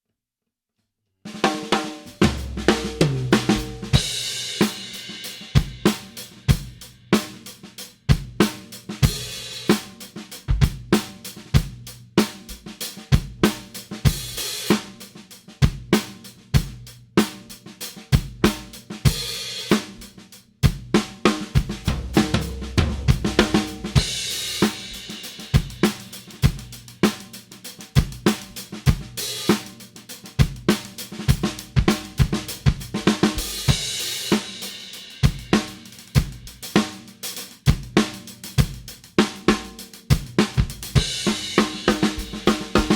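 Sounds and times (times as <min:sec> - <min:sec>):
drum kit groove: 0:01.3 - 0:42.9
hi-hat cymbal wash: 0:23.3 - 0:28.6.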